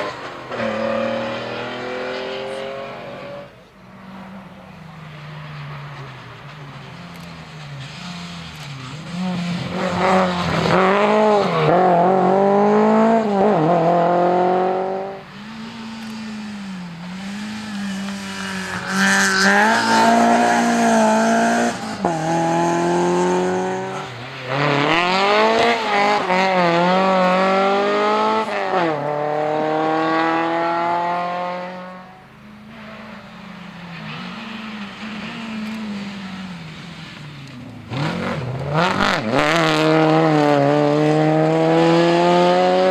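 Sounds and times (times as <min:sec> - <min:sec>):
car engine revving hard: 0:00.0 - 0:03.6, 0:07.9 - 0:32.2, 0:37.8 - 0:42.9.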